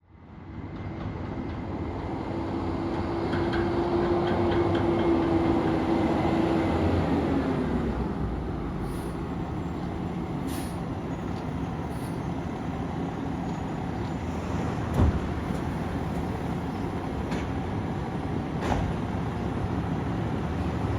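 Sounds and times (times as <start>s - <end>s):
brief high hisses: 10.4s - 10.9s.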